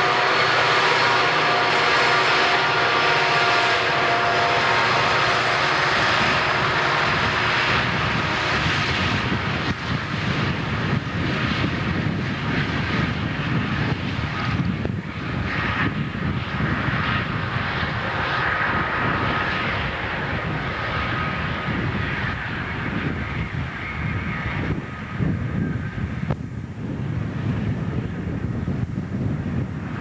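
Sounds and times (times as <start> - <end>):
train rolling by: 0.0 - 13.7, 14.3 - 23.9
diesel locomotive engines droning: 0.0 - 30.0.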